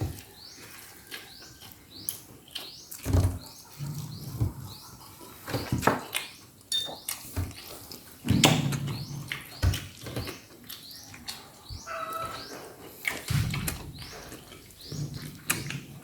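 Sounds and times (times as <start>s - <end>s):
wet chewing and smacking: 0.0s - 16.0s.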